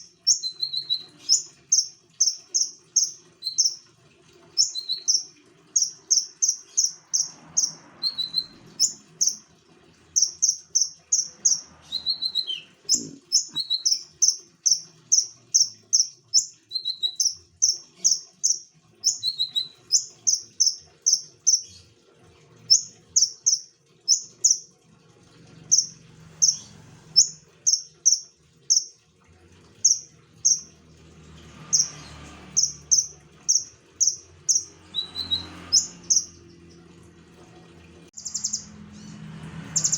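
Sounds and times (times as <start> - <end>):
songbird chirping: 0.0 - 3.8, 4.6 - 9.5, 10.1 - 21.7, 22.7 - 24.7, 29.8 - 30.7, 31.7 - 36.8, 38.2 - 39.9.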